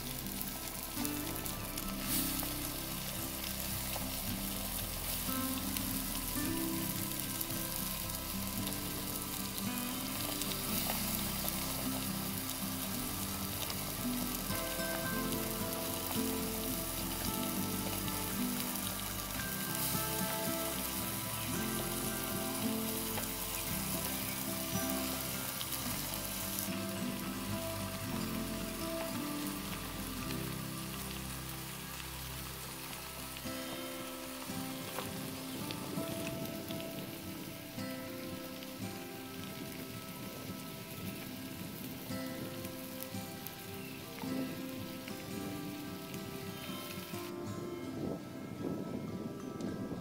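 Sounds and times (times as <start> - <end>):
food sizzling on hot tray: 0.0 - 50.0.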